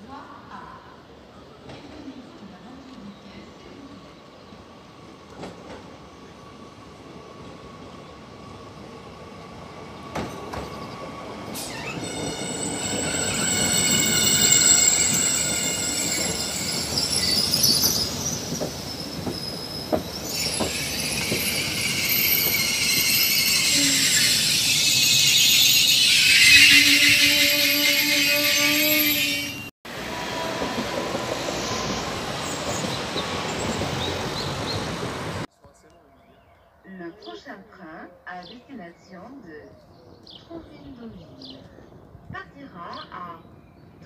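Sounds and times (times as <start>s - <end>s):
train wheels squealing: 10.1s - 29.7s, 31.3s - 34.8s.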